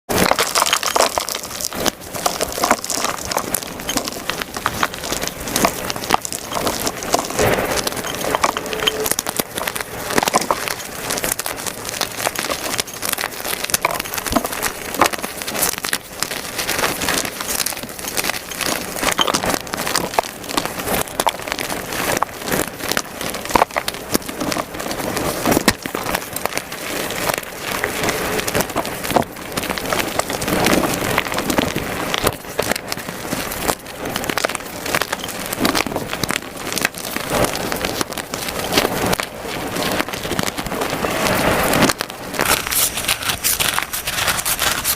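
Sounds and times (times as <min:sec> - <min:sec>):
chalk being crushed by hand: 0:39.9 - 0:44.9.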